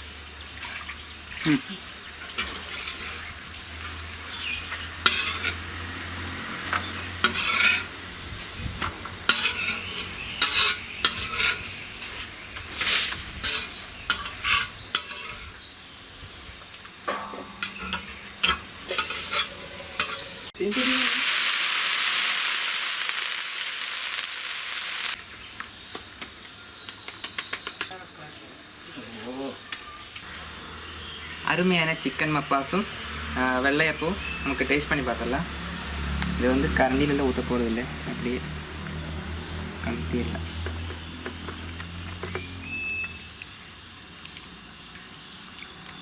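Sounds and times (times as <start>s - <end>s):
loud sizzling hiss: 20.6s - 25.2s.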